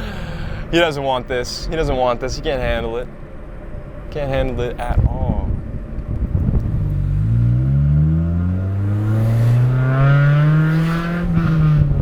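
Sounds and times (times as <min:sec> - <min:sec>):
car engine accelerating hard: 0:06.1 - 0:12.0.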